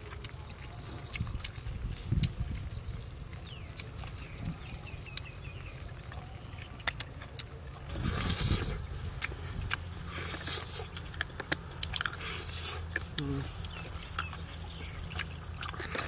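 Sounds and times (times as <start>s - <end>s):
man chewing food: 0.0s - 16.0s
wind rumble on microphone: 1.0s - 5.9s, 7.8s - 10.0s.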